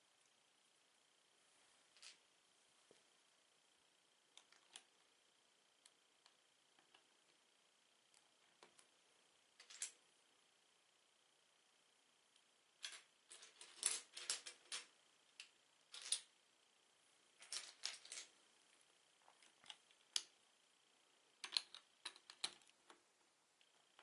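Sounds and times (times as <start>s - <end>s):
plastic bricks clicking: 21.4s - 22.7s.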